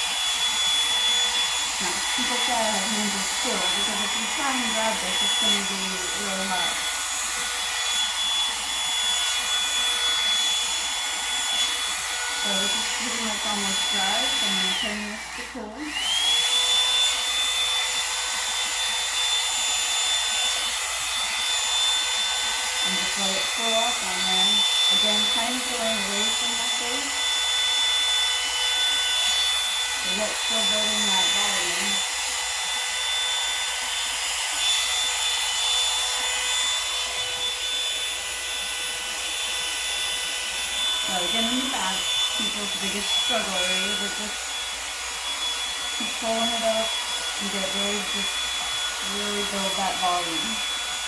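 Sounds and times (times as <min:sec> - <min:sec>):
hair dryer running: 0:00.0 - 0:51.0.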